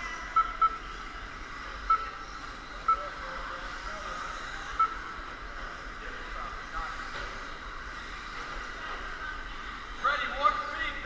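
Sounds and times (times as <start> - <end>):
short high beeps: 1.9 - 2.2, 4.8 - 5.1.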